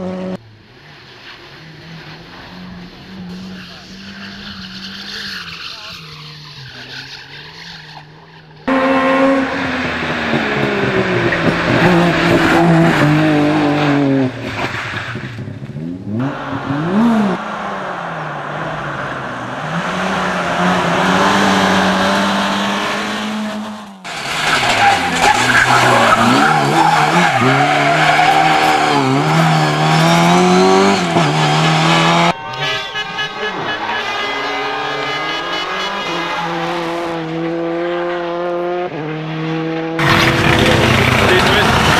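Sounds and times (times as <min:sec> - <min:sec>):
rally car engines revving: 0:00.0 - 0:41.9
tyres skidding and squealing: 0:00.4 - 0:41.9.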